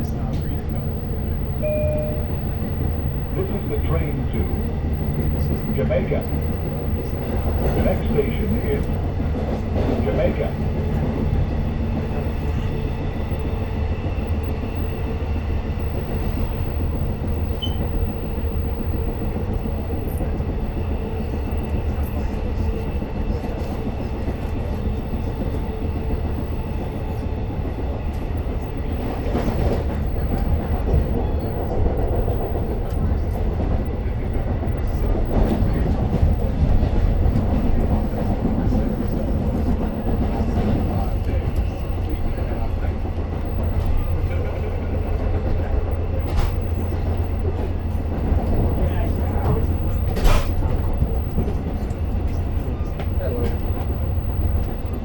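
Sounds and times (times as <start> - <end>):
faint whine: 0.0 - 9.1
train wheels rumbling on track: 0.0 - 55.0.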